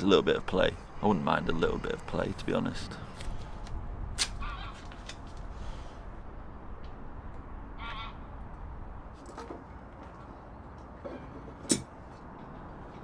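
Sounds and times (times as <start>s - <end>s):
steady low rumble: 0.0s - 9.2s.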